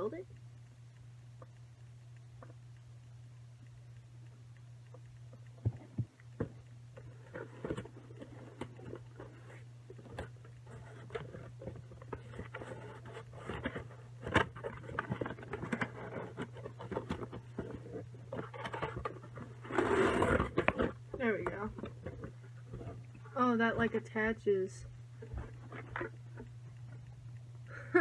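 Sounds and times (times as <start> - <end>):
steady low hum: 0.0 - 28.0
clicks knocks and scrapes of toy parts: 5.6 - 23.0.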